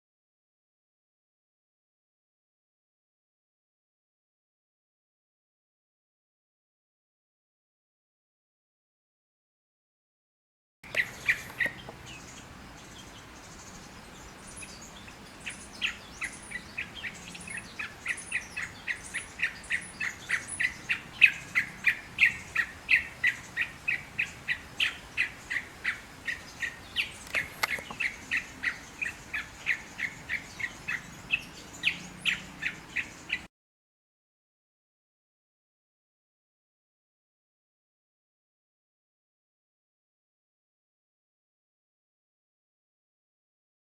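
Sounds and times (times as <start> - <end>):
bird calling sharp notes: 10.9 - 12.5, 15.5 - 33.1.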